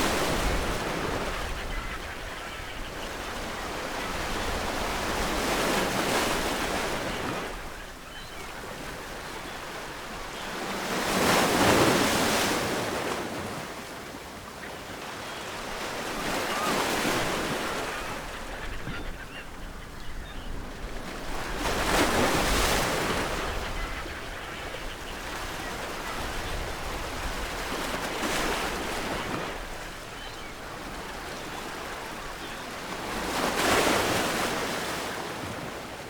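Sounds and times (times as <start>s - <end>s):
ocean waves breaking: 0.0s - 13.9s.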